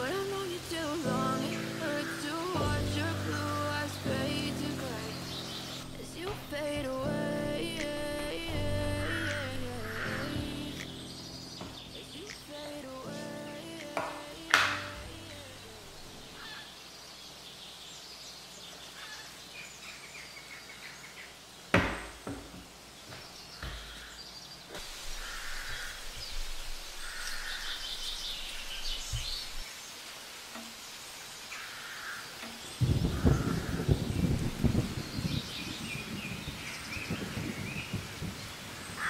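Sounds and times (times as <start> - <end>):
wild birds chirping: 0.0 - 39.0.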